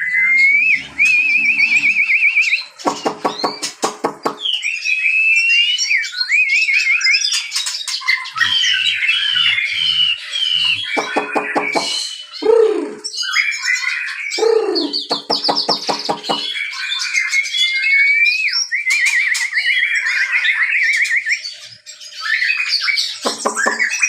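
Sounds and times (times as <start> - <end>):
fast bird trill: 0.0 - 4.9, 7.6 - 13.6, 14.3 - 17.2, 23.0 - 24.0
songbirds chirping and calling: 0.0 - 24.0.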